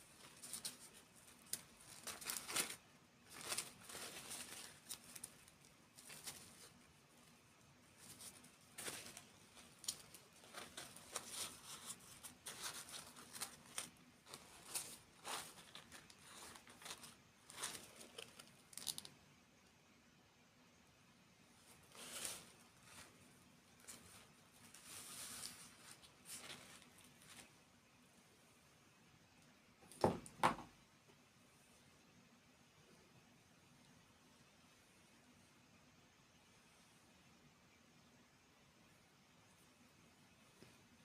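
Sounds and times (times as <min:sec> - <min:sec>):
packaging crinkling and tearing: 0:00.3 - 0:06.8, 0:08.3 - 0:19.1.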